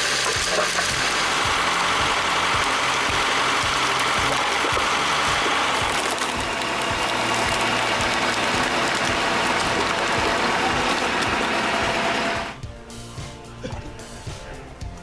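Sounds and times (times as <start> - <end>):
machinery clattering: 0.0 - 12.6
background music with a beat: 0.0 - 15.0.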